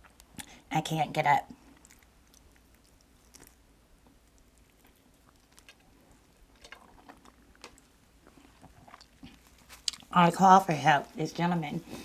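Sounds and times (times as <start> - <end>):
mouth clicks of chewing: 8.6 - 10.1.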